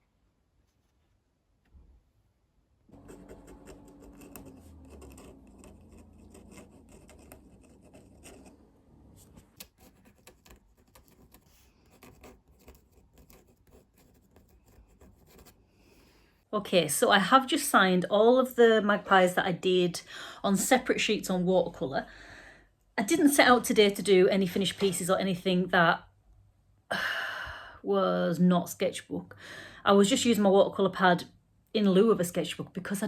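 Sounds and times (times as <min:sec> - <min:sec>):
pen scratching on paper: 0:02.9 - 0:16.0.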